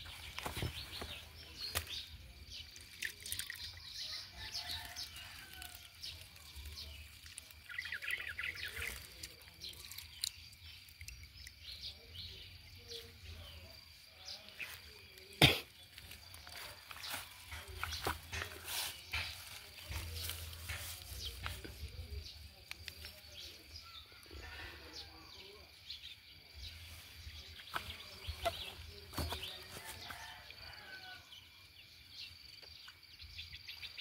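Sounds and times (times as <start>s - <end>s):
footsteps on dry leaves: 0.0s - 2.1s, 4.6s - 7.5s, 15.9s - 22.0s, 26.7s - 30.8s
birds chirping: 0.0s - 34.0s.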